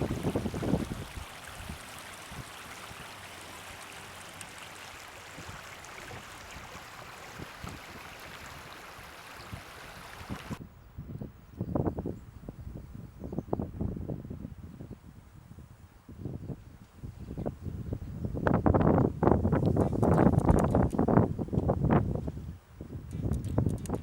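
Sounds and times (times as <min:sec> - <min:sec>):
wind bumps on microphone: 0:00.0 - 0:03.1, 0:05.3 - 0:24.0
floodwater rushing: 0:00.0 - 0:10.6.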